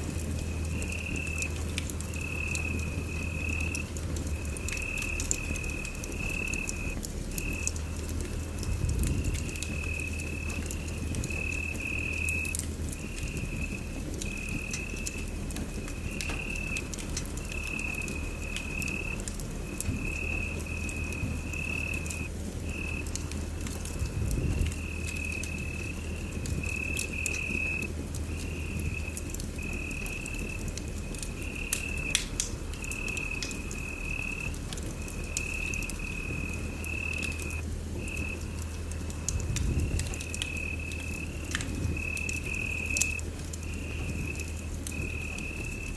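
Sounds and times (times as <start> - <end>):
wood fire crackling and popping: 0.0 - 45.9.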